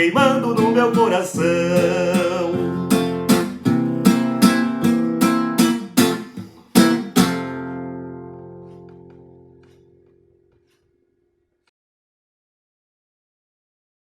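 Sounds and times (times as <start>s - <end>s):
acoustic guitar strumming chords: 0.0s - 10.8s.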